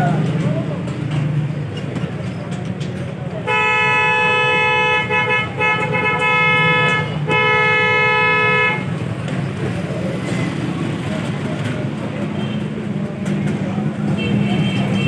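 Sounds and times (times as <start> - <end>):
two-tone vehicle horn honking: 3.4 - 9.0, 14.1 - 15.0.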